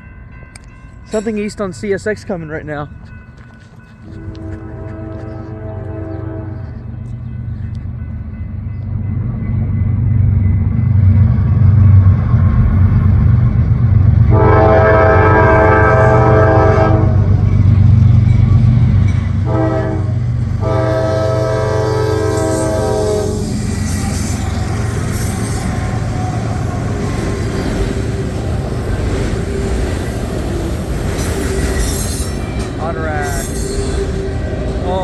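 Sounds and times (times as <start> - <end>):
diesel locomotive engine rumble: 0.0 - 35.0
train air horn blasts: 4.0 - 6.9, 14.3 - 17.4, 19.4 - 23.7.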